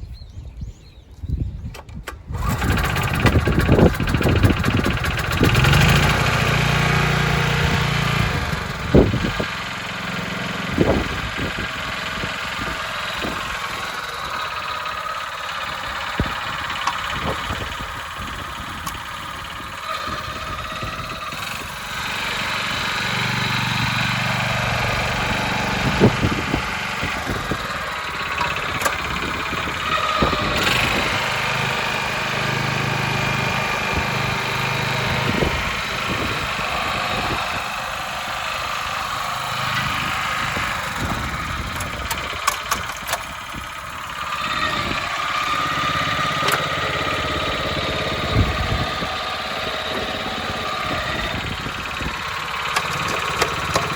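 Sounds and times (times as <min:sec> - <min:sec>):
cultivator engine running: 0:01.8 - 0:53.9
sharp clicks: 0:28.2 - 0:29.4, 0:41.7 - 0:43.5, 0:52.7 - 0:53.9.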